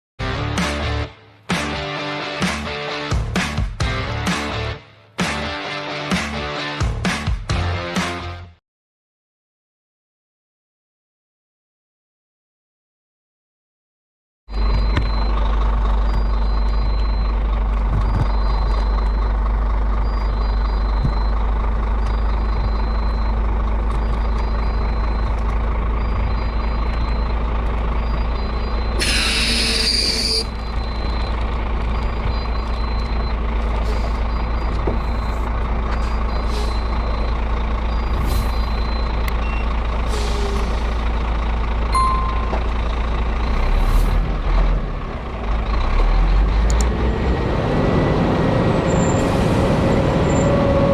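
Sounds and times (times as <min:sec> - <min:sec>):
truck engine drone: 0:00.2 - 0:08.6, 0:14.5 - 0:50.9
high warning beep: 0:20.0 - 0:23.4, 0:24.0 - 0:40.5, 0:42.0 - 0:42.7
air brake hiss: 0:29.0 - 0:30.4.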